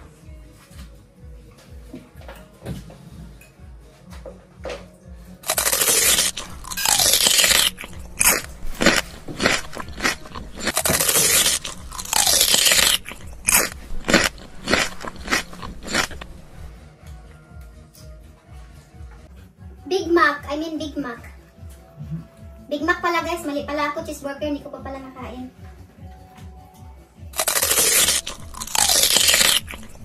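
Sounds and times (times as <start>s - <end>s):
crunching and chewing food: 5.4s - 16.8s, 27.4s - 30.0s.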